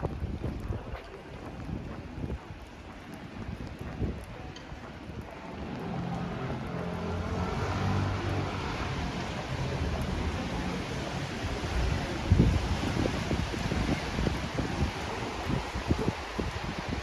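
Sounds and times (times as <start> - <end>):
wet tyres on road: 0.0 - 17.0
vehicle engine passing: 5.4 - 12.8
rain hissing: 5.5 - 17.0.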